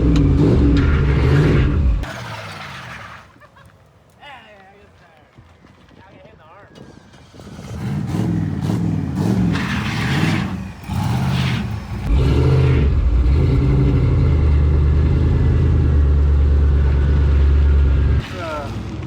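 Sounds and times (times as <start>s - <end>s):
car engine revving: 0.0s - 3.1s, 7.2s - 19.0s.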